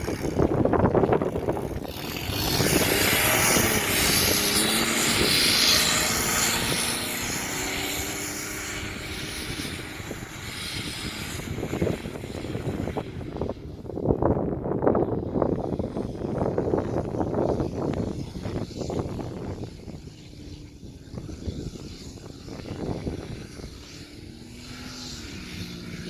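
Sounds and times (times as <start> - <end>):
engine revving hard: 0.0 - 13.5.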